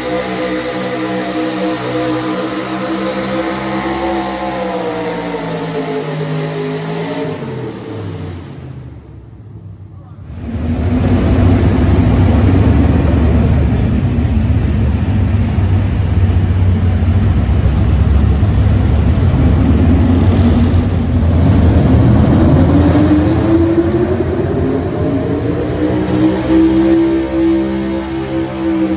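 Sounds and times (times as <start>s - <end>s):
truck engine at high revs: 0.0s - 28.9s.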